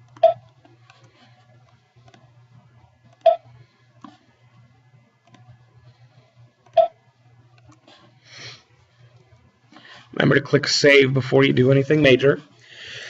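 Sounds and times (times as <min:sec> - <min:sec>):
computer mouse clicks: 0:00.0 - 0:02.3, 0:04.0 - 0:05.6, 0:07.5 - 0:08.1
low steady hum: 0:00.0 - 0:13.0.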